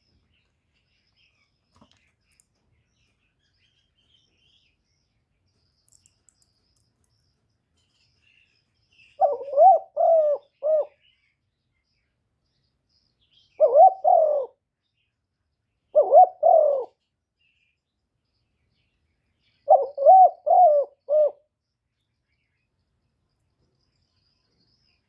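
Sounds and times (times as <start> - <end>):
dove cooing: 9.2 - 11.0, 13.6 - 14.6, 16.0 - 17.0, 19.7 - 21.5.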